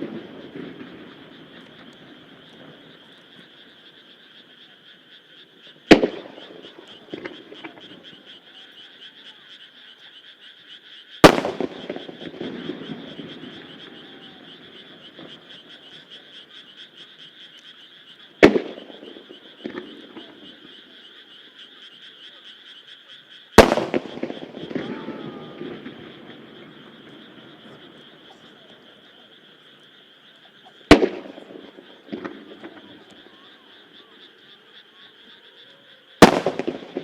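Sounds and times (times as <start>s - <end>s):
firework booms with echo: 0.0s - 3.0s, 5.9s - 8.1s, 11.2s - 16.0s, 18.4s - 20.6s, 23.6s - 28.4s, 30.9s - 33.1s, 36.2s - 37.0s
frogs croaking: 0.0s - 37.0s.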